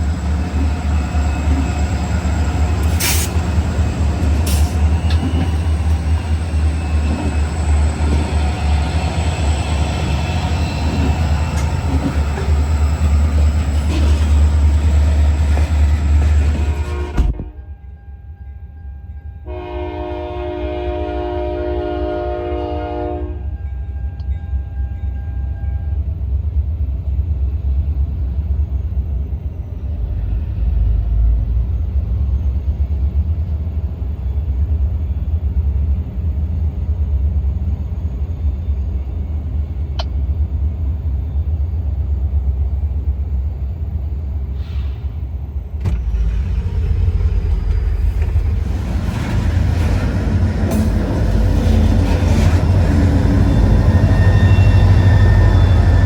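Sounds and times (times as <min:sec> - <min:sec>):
locomotive horn blast: 0:16.3 - 0:18.0, 0:19.4 - 0:24.2.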